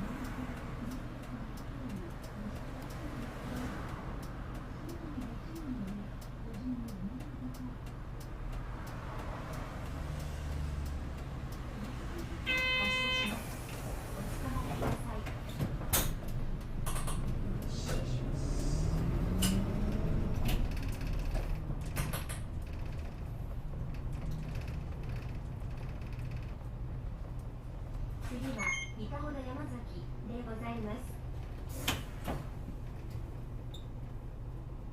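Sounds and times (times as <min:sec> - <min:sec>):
bus engine: 0:00.0 - 0:34.9
door chime: 0:12.5 - 0:13.3
clunks: 0:19.0 - 0:29.0
pneumatic door hiss: 0:31.7 - 0:32.3.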